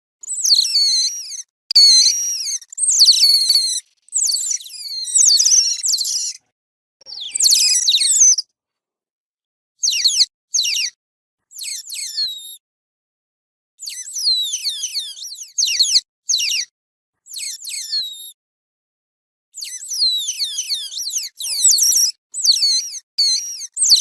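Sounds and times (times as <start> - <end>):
otter chirping: 0.2 - 6.4, 7.0 - 8.4, 19.6 - 24.0.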